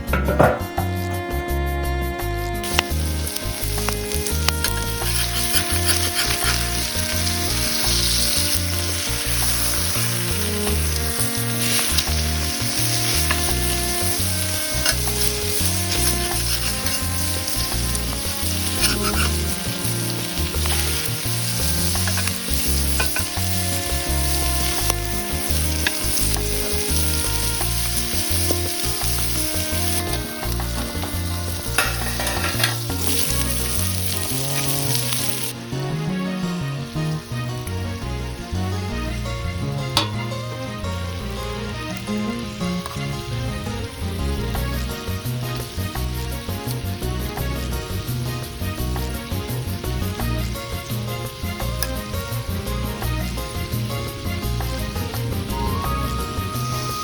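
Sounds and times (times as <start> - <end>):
food sizzling in a pan: 0.0 - 57.0
spatula scraping a pan: 2.6 - 35.5.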